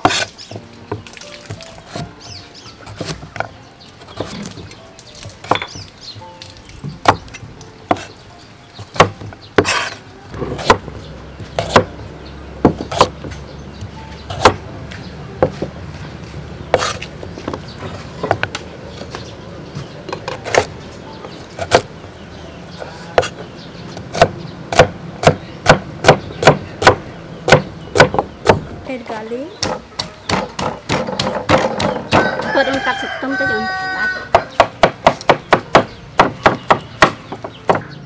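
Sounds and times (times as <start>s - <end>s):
knife chopping on wooden board: 0.0s - 2.1s, 2.8s - 4.7s, 6.8s - 8.1s, 8.8s - 12.0s, 12.6s - 14.6s, 16.7s - 17.6s, 20.1s - 20.7s, 21.6s - 21.9s, 22.8s - 23.4s, 24.0s - 28.7s, 29.6s - 33.0s, 34.3s - 37.9s.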